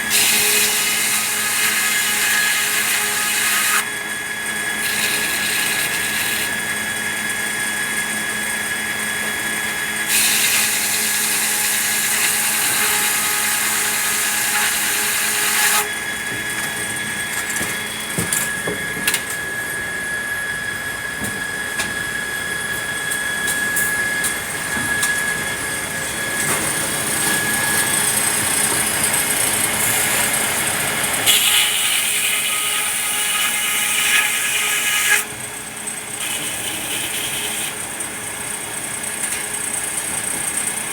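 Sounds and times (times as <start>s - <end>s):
saw cutting wood: 0.0s - 18.3s, 26.0s - 40.3s
sawmill machinery humming: 0.0s - 40.9s.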